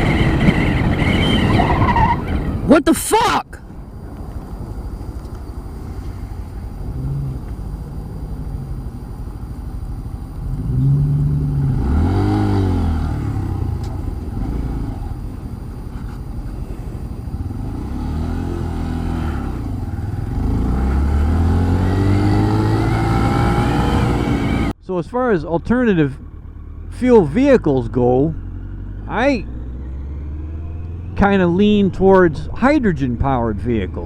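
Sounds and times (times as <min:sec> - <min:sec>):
road noise: 0:00.0 - 0:34.0
vehicle engine: 0:00.0 - 0:34.0.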